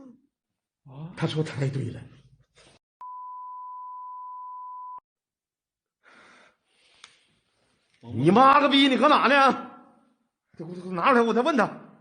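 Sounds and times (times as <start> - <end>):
censor beep: 3.0 - 5.0.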